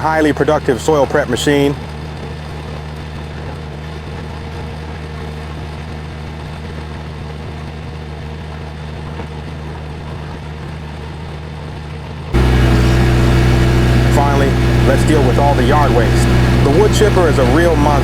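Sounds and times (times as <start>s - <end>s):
loader engine running steadily: 12.4s - 18.0s.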